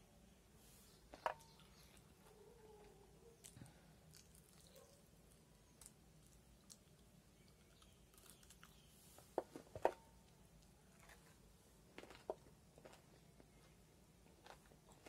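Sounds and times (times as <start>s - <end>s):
person chewing: 3.4s - 8.8s, 11.0s - 15.0s.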